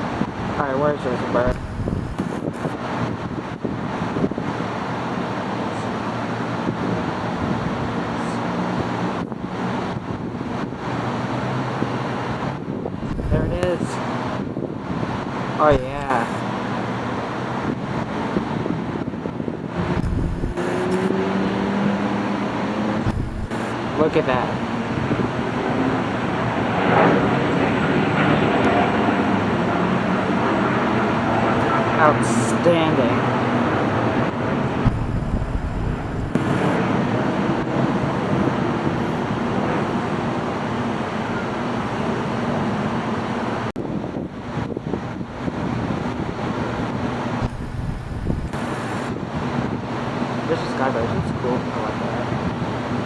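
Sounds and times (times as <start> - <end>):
distant jet engines roaring: 0.0 - 53.0.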